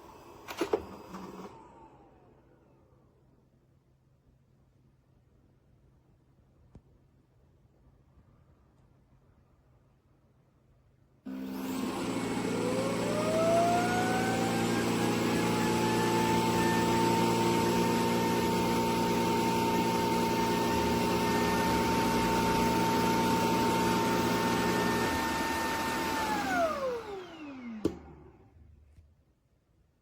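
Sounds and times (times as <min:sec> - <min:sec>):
vacuum motor whine: 0:00.0 - 0:02.8, 0:11.3 - 0:28.6.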